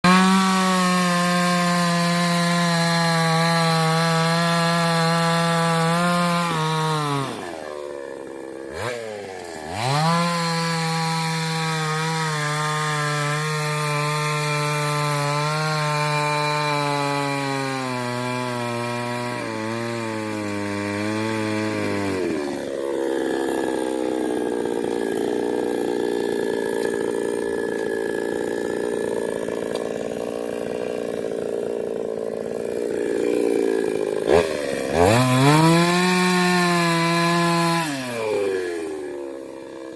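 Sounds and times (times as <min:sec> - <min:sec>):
chainsaw cutting a tree trunk: 0:00.0 - 0:39.9.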